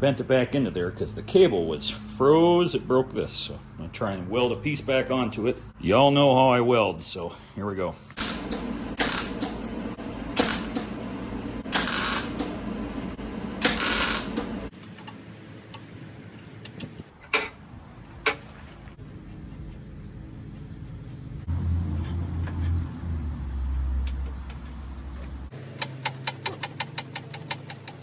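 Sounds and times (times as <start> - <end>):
welding arc bursts: 8.2 - 9.6, 10.3 - 10.9, 11.6 - 12.6, 13.6 - 14.7
steady welder hum: 8.2 - 16.4.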